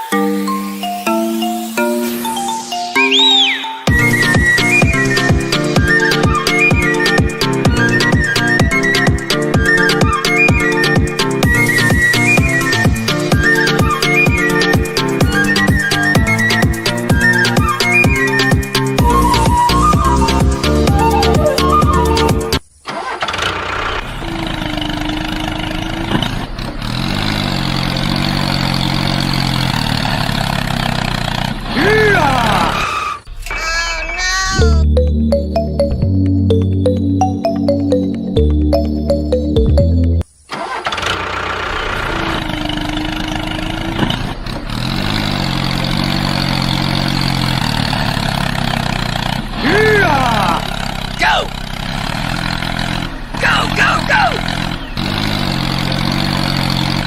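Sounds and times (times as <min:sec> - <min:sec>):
background music: 0:00.0 - 0:22.6, 0:33.3 - 0:40.2
tone shifting in pitch: 0:00.4 - 0:05.1, 0:19.0 - 0:22.6, 0:34.6 - 0:40.2
small engine running: 0:03.9 - 0:33.2, 0:40.5 - 0:57.0.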